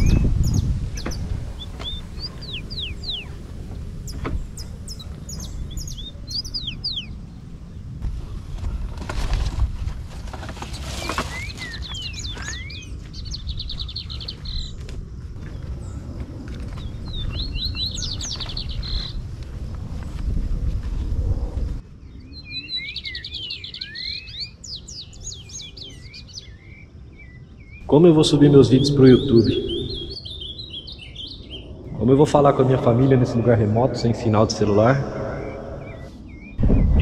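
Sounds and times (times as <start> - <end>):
steady low rumble: 0.0 - 10.1, 12.9 - 22.1, 27.8 - 37.0
songbirds chirping: 0.0 - 20.4, 21.8 - 37.0.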